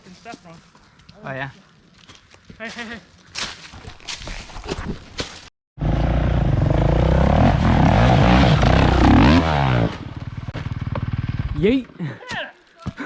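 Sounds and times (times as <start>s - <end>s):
dirt bike engine revving: 5.8s - 11.8s.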